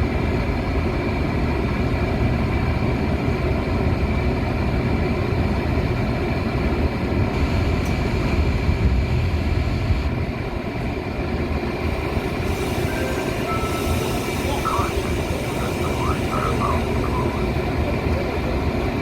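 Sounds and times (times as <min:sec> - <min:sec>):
train rumbling: 0:00.0 - 0:19.0
faint high whine: 0:12.4 - 0:17.8.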